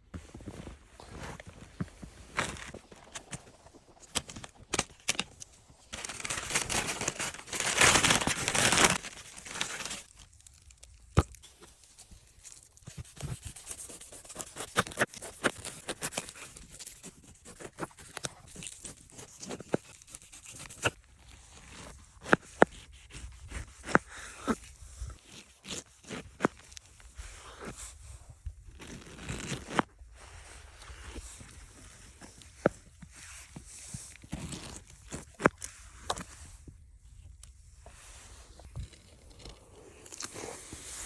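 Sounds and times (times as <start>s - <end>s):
pineapple tearing and crunching: 6.0s - 11.6s.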